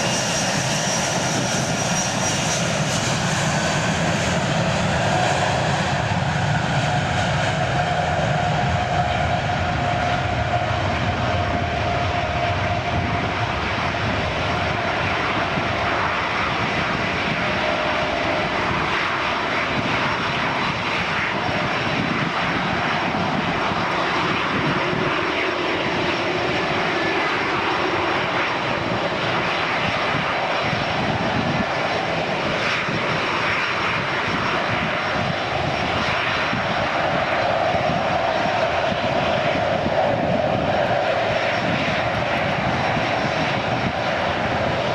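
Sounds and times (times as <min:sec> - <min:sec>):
jet engines at takeoff power: 0:00.0 - 0:44.9.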